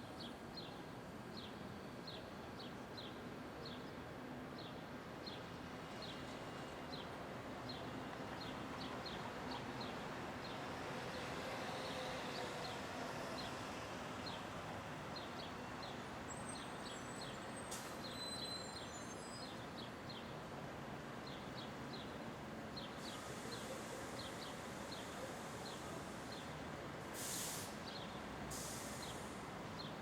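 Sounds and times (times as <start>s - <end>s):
brief hisses: 27.2s - 27.9s, 28.5s - 29.4s.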